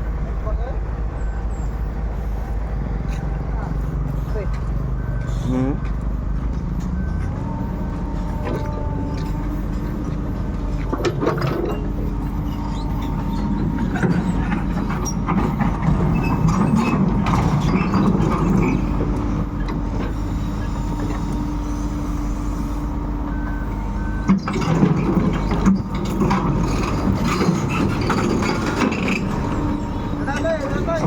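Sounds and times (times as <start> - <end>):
excavator diesel engine running: 0.0 - 31.0
steel tracks clanking and creaking: 0.0 - 31.0.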